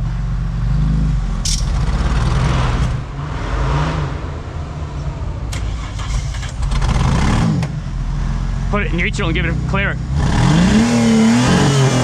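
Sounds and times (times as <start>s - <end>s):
off-road engine labouring: 0.0s - 12.0s
sharp click: 1.4s - 1.8s.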